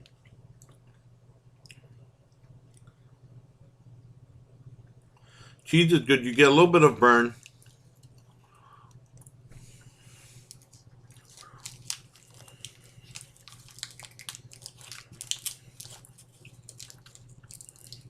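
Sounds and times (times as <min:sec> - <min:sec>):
steady low hum: 0:00.0 - 0:18.0
person chewing: 0:10.4 - 0:18.0.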